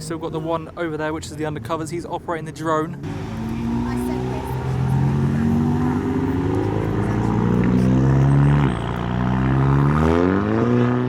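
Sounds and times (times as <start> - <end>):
car engine accelerating: 3.0 - 11.0.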